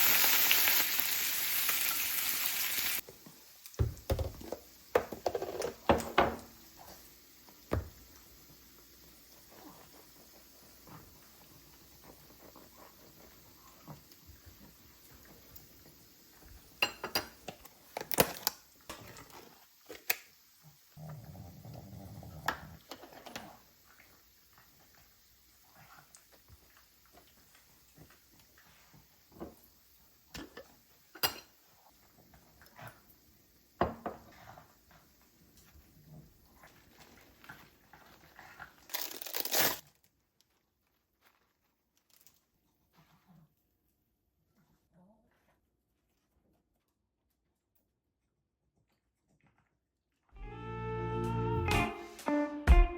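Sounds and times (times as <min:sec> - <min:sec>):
dishes and utensils clinking: 0:16.8 - 0:17.7
wrapper crinkling: 0:17.9 - 0:18.6, 0:36.9 - 0:42.6.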